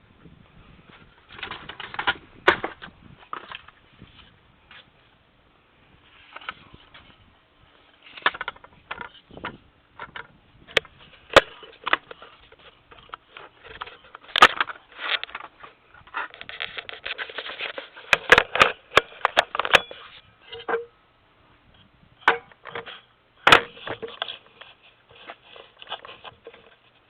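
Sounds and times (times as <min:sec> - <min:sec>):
tools knocking clicking and scraping: 0:08.1 - 0:20.9, 0:22.2 - 0:27.0.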